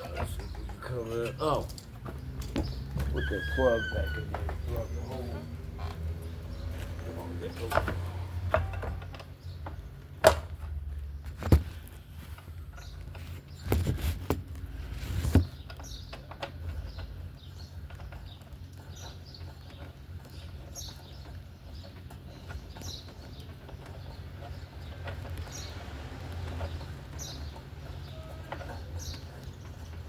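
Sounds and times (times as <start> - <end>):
birds chirping: 0.0 - 30.0
handling knocks and clatters: 0.0 - 30.0.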